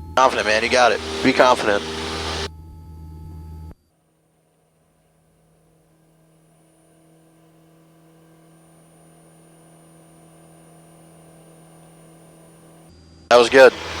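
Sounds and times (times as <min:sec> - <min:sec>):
faint airplane engine hum: 0:00.0 - 0:02.5, 0:13.3 - 0:14.0.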